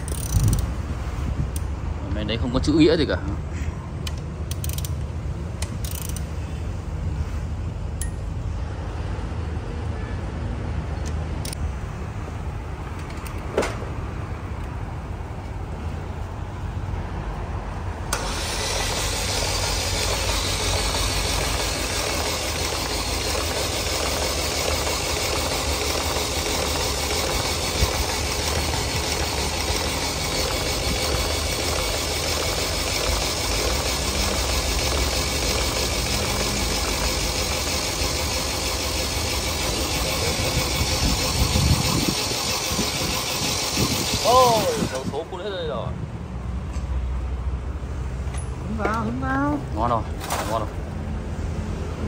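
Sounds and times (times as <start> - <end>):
loud hissy steady noise: 18.1 - 45.7.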